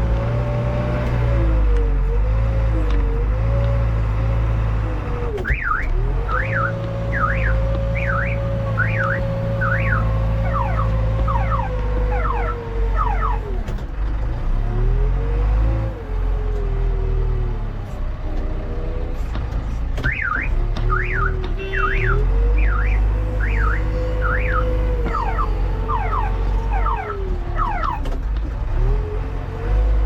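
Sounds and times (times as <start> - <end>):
diesel engine under load: 0.0 - 30.0
warbling electronic alarm: 5.5 - 13.4, 22.0 - 28.0.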